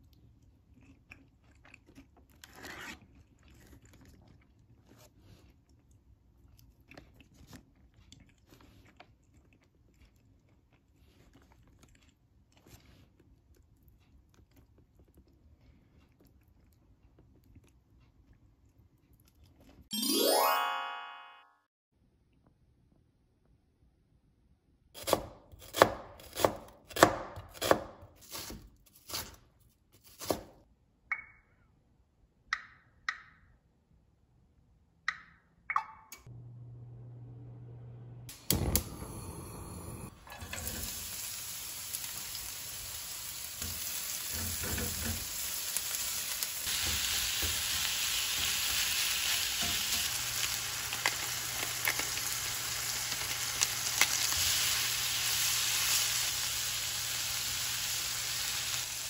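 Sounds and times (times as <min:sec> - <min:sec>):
knife chopping on plastic board: 0:25.0 - 0:29.3
meat and onion sizzling in pan: 0:40.4 - 0:59.0.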